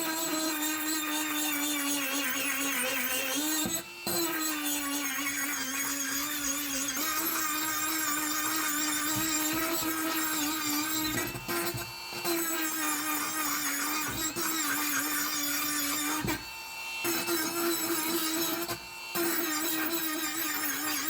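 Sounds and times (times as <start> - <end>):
power tool motor whine: 0.0 - 21.0.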